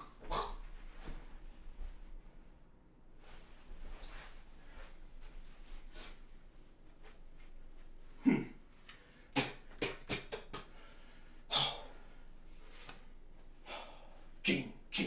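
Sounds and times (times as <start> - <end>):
man breathing hard: 10.6 - 12.3, 13.6 - 14.4.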